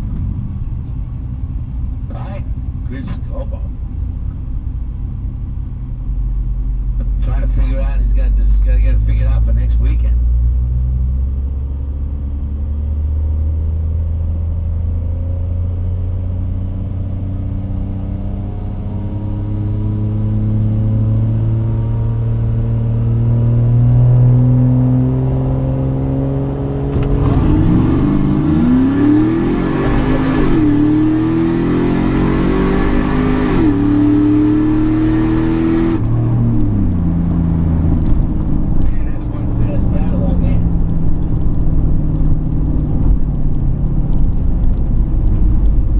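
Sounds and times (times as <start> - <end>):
car engine accelerating: 4.1 - 45.9.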